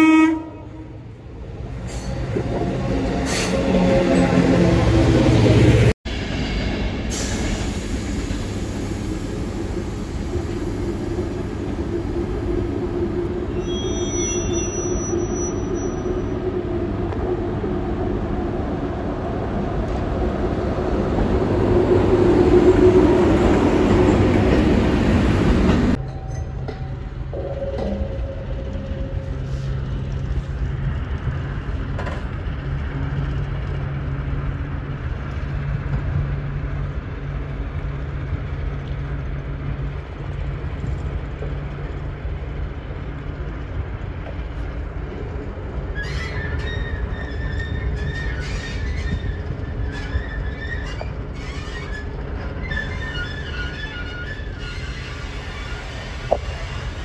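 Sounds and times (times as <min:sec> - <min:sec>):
diesel locomotive engine hum: 0:00.0 - 0:57.0
train rumble: 0:00.0 - 0:57.0
high wheel squeal: 0:13.5 - 0:16.5, 0:45.9 - 0:57.0.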